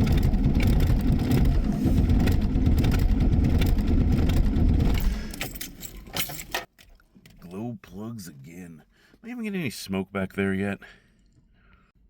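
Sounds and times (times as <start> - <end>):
starter cranking diesel engine: 0.0 - 5.8.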